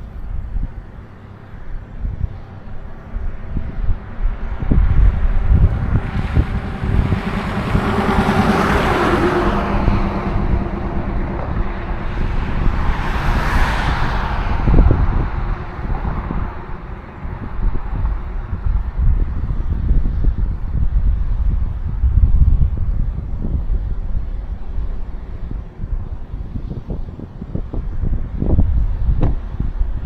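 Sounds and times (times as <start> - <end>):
vehicles passing: 0.0 - 30.0
wind buffeting microphone: 0.0 - 30.0.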